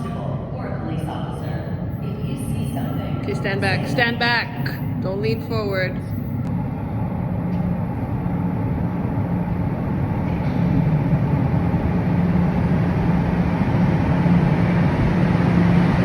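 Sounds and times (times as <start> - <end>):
low hum: 0.0 - 16.0
subway train rumble: 0.0 - 16.0.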